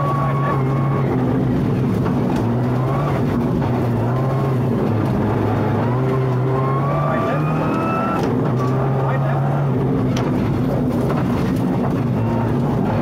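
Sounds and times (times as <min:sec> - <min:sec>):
car engine droning: 0:00.0 - 0:13.0
thin whine rising in pitch: 0:05.3 - 0:08.9.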